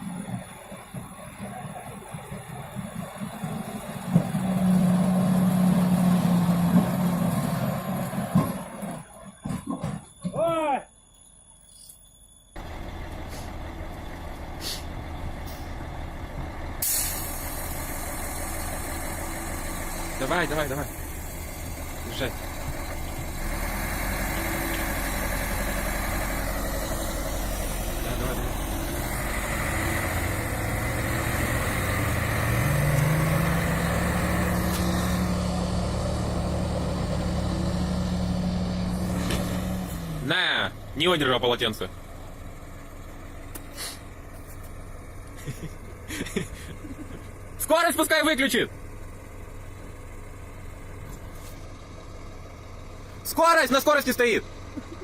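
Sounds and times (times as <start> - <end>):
heavy truck engine running: 0.0 - 10.3, 12.5 - 55.0
air hissing: 14.5 - 15.7, 16.8 - 20.2, 43.6 - 44.1.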